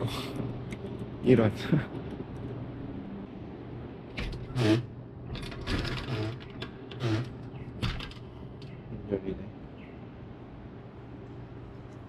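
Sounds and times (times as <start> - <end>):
steady low hum: 0.0 - 12.0
locked door rattling and clanking: 4.2 - 8.2.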